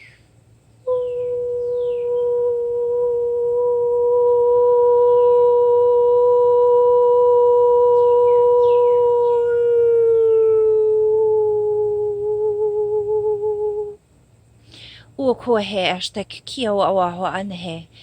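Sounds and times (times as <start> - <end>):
woman singing long steady tone: 0.0 - 14.0.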